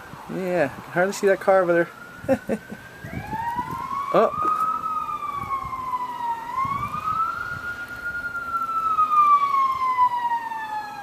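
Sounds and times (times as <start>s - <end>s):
police siren wailing: 0.0s - 11.0s.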